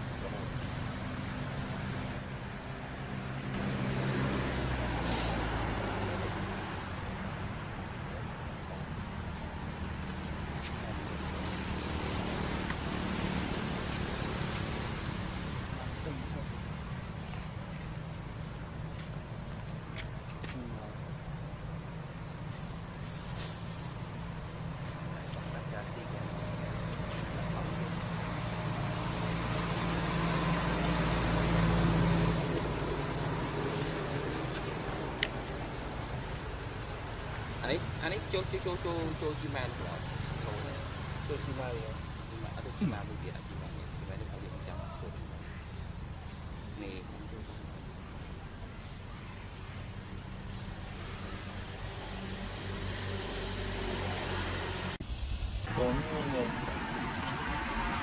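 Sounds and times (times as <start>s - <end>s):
high-pitched whine: 0.0s - 19.4s, 20.6s - 58.0s
insects droning: 0.0s - 55.0s, 55.6s - 58.0s
low rumble: 55.0s - 58.0s.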